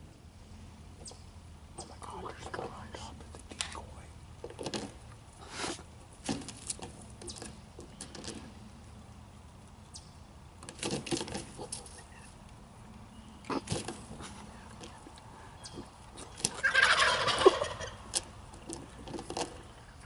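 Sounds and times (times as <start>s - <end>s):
turkeys scuffling and flapping: 2.3s - 9.9s, 10.5s - 20.0s
turkey soft clucks: 13.5s - 18.0s.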